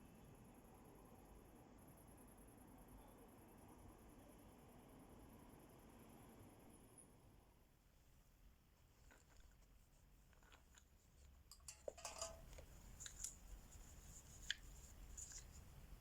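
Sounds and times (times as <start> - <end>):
crayons and paper rustling: 12.4 - 15.8.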